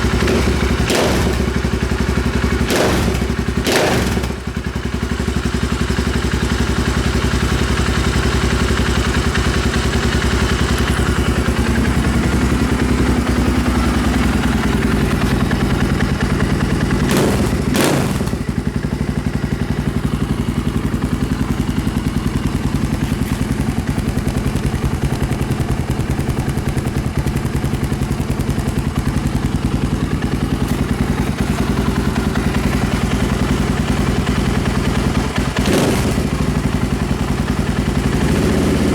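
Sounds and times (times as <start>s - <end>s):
motorcycle engine idling: 0.0s - 38.9s
sharp knocks: 2.7s - 4.4s.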